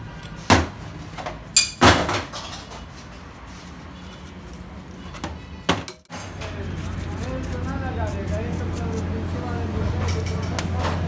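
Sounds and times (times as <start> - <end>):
metal tools knocking and clinking: 1.6 - 2.6, 10.0 - 10.7.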